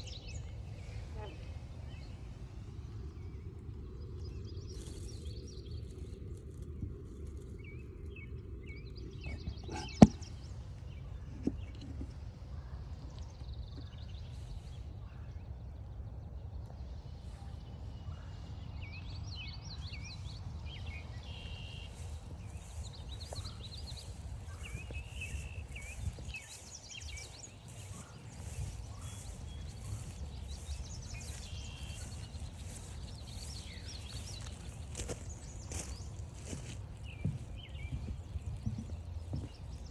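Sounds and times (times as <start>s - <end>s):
songbirds chirping and trilling: 0.0s - 39.9s
footsteps on a trail: 20.7s - 39.9s.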